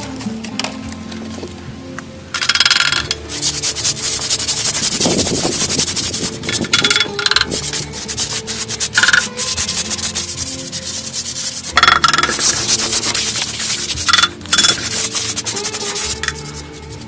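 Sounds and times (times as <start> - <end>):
faint background music: 0.0 - 17.0
rapid scraping strokes: 2.5 - 17.0.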